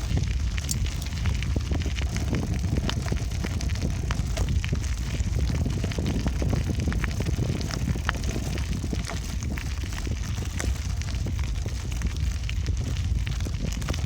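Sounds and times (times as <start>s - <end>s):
bike clicks and rattles: 0.0s - 14.0s
wind buffeting microphone: 0.0s - 14.0s.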